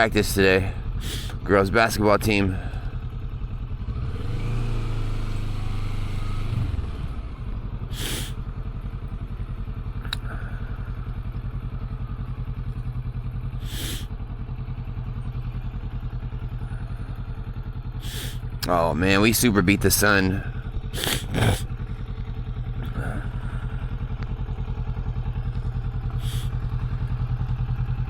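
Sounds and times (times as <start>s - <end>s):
motorcycle engine idling: 0.0s - 28.0s
short hissy whooshes: 8.0s - 8.4s.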